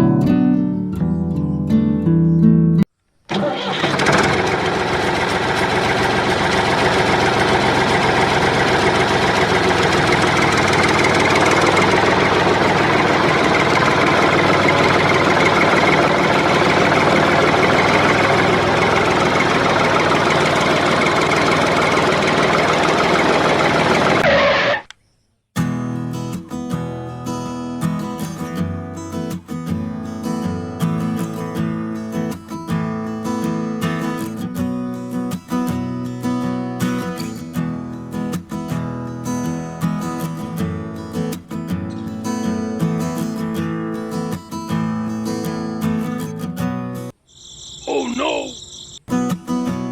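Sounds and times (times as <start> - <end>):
small engine running with knocking: 3.4 - 24.8.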